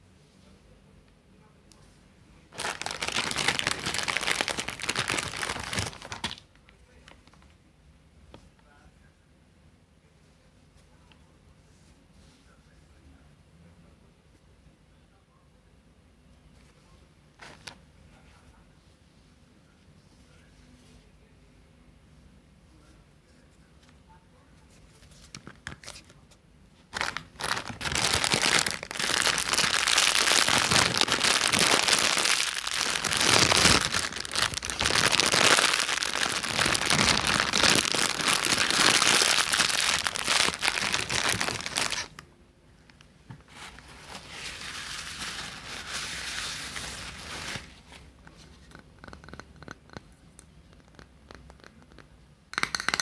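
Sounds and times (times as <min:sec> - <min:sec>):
crinkling and rustling: 0:02.5 - 0:07.6, 0:24.7 - 0:42.2, 0:43.3 - 0:49.7.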